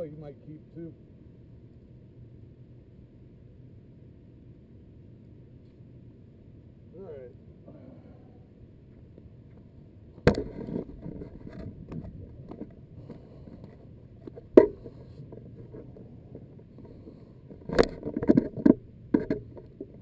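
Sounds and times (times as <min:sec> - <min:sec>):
sharp knocks and clatter: 0:10.2 - 0:16.5
light scraping: 0:10.3 - 0:20.0.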